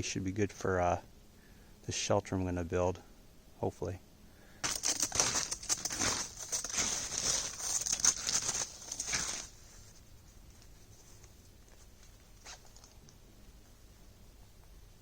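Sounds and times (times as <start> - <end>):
rustling and crunching: 4.6 - 14.8.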